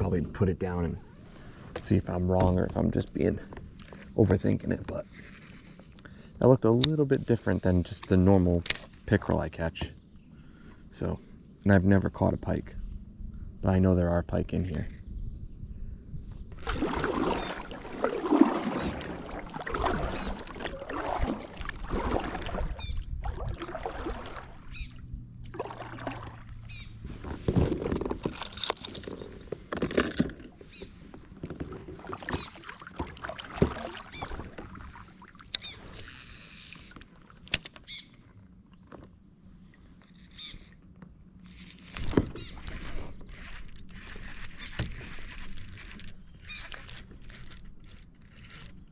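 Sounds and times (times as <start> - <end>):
paddle splashing in water: 16.5 - 37.6, 41.5 - 48.8.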